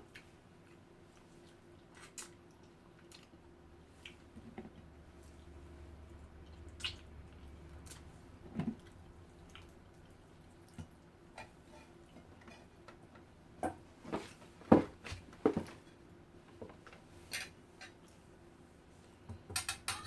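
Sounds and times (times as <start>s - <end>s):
wet chewing clicks and smacks: 0.1s - 3.4s.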